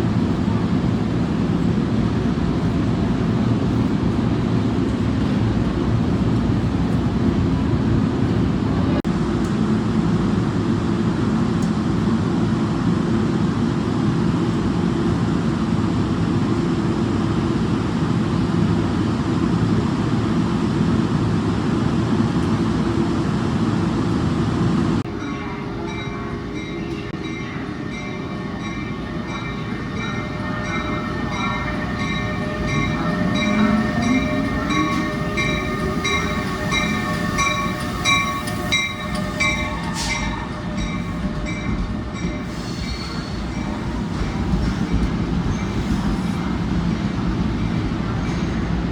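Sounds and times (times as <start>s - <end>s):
train rumble: 0.0s - 48.9s
train high whines: 14.4s - 48.9s.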